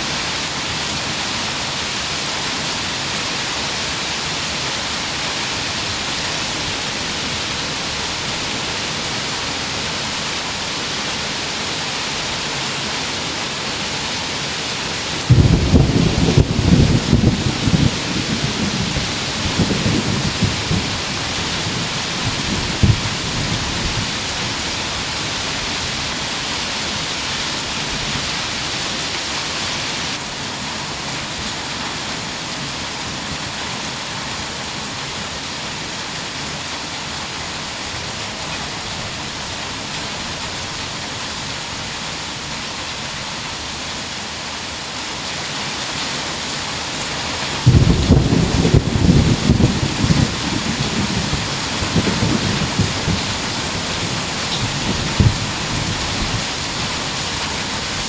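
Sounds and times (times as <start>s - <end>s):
heavy rain: 0.0s - 58.0s
thunder rumbling: 15.2s - 26.3s, 47.6s - 56.8s
sharp thunder crack: 15.3s - 18.9s, 47.6s - 53.2s.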